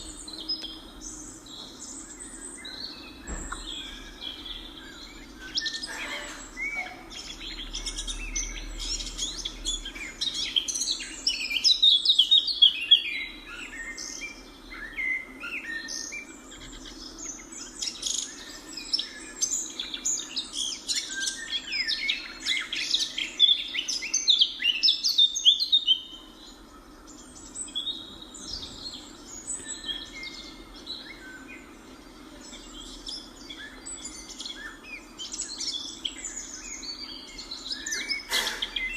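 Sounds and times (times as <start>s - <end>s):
steady low hum: 0.0s - 11.8s
flock of birds chirping: 0.0s - 38.9s.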